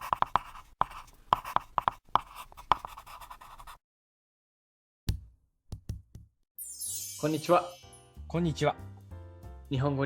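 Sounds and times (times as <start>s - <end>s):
pen scratching while writing: 0.0s - 3.8s.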